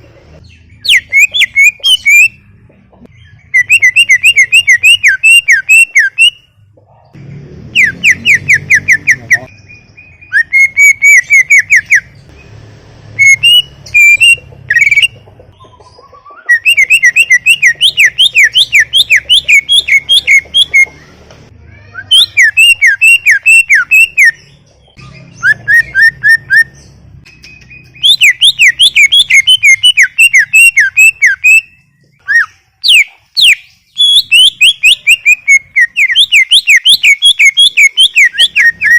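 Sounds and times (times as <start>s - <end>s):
bird singing whistled notes: 0.4s - 2.4s, 3.1s - 6.5s, 7.8s - 12.2s, 13.2s - 20.9s, 22.0s - 38.9s.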